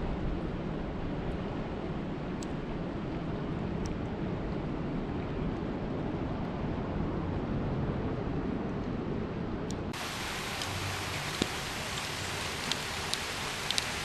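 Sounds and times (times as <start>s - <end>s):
dense rain: 10.0s - 14.0s
raindrop ticks: 10.0s - 14.0s.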